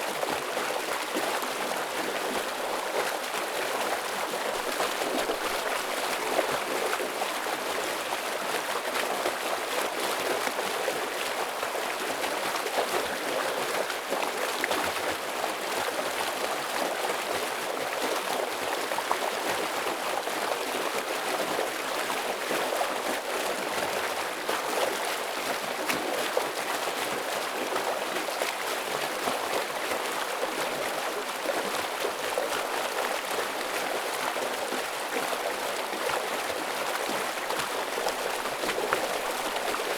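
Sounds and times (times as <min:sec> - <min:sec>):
stream rushing over rocks: 0:28.4 - 0:39.9.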